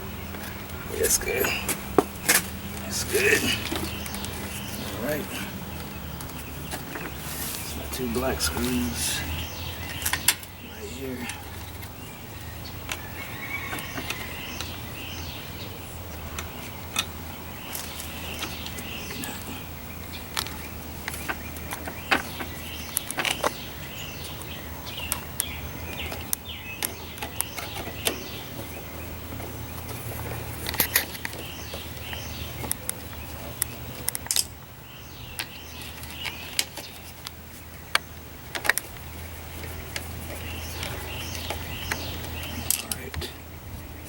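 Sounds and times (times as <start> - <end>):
birds chirping: 0.0 - 44.0
steady low hum: 0.0 - 44.0.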